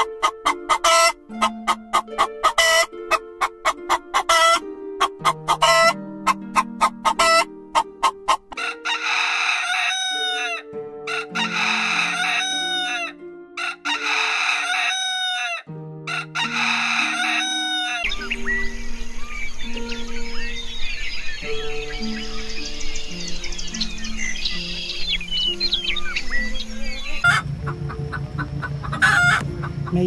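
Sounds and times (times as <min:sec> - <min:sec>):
chicken clucking: 0:00.0 - 0:18.2, 0:25.7 - 0:30.0
soft background music: 0:00.0 - 0:30.0
rooster crowing: 0:08.6 - 0:18.1.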